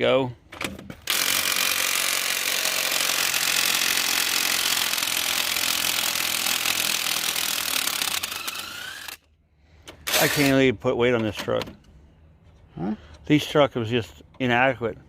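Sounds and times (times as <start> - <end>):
power tool running: 1.0 - 9.3, 10.0 - 10.5.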